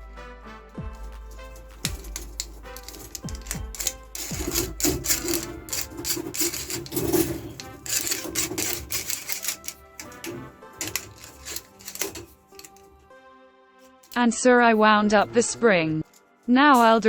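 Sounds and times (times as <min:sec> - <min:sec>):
background music: 0:00.0 - 0:17.0
tape measure clicking and rattling: 0:01.0 - 0:13.0, 0:16.0 - 0:17.0.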